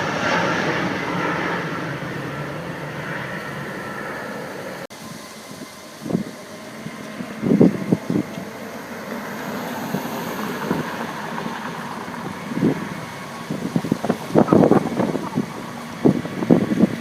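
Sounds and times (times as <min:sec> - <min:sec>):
jet engines at takeoff power: 0:00.0 - 0:17.0
wind buffeting the microphone: 0:05.4 - 0:17.0.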